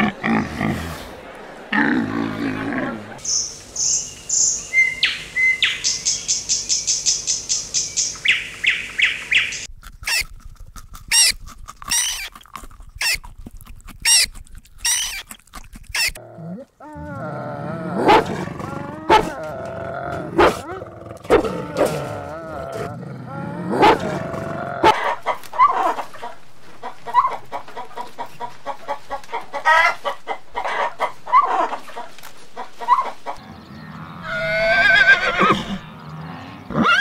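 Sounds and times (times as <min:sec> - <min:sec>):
budgerigar chirping rapidly: 0:03.3 - 0:10.3
otter squeaking: 0:10.0 - 0:10.3, 0:11.1 - 0:16.2
wolf whining and yelping: 0:11.9 - 0:12.3, 0:14.1 - 0:15.2, 0:18.0 - 0:19.5.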